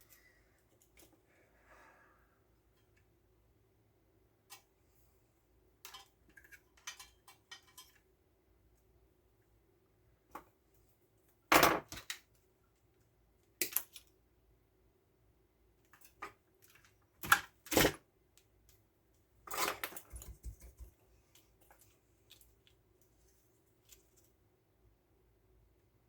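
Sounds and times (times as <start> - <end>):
hand tools clicking and clattering: 5.8 - 8.0.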